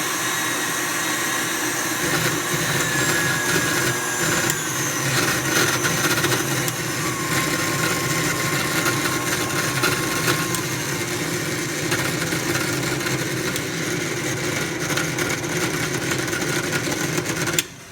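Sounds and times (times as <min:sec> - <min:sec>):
stand mixer grinding: 0:00.0 - 0:17.8
motor humming: 0:01.9 - 0:13.7.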